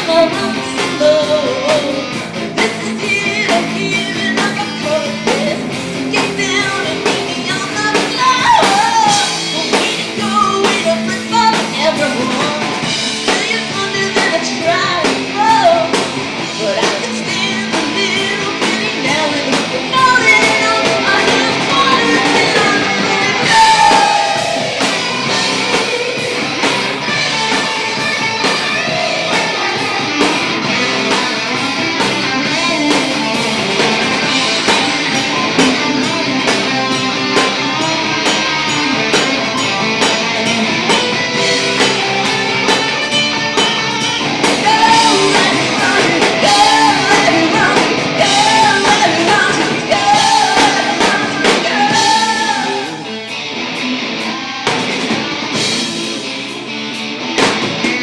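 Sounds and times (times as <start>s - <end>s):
woman singing: 0.0s - 25.4s, 32.3s - 33.4s, 44.1s - 53.1s
live rock band playing: 0.0s - 58.0s.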